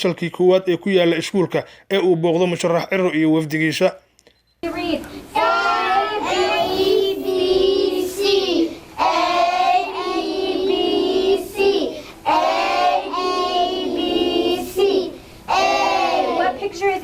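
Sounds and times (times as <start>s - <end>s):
young children singing: 5.3s - 16.8s.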